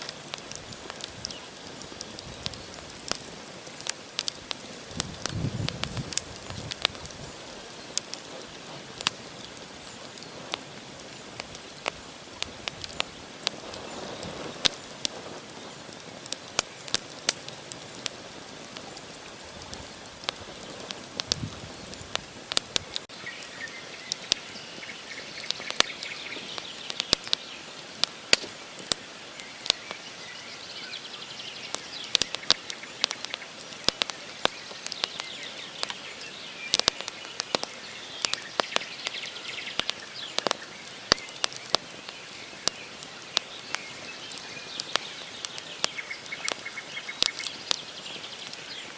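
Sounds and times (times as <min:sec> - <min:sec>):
campfire crackling and popping: 0:00.0 - 0:48.9
birds calling: 0:29.3 - 0:48.9.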